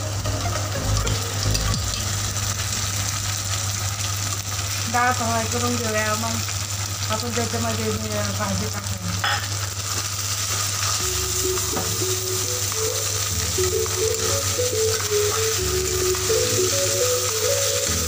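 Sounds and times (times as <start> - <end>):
background melody: 0.0 - 3.5, 11.0 - 18.0
lentils sizzling in oil: 0.0 - 18.0.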